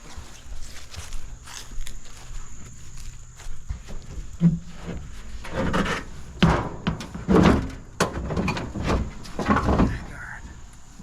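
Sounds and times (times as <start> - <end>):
scrap thunking in truck bed: 4.4 - 10.1.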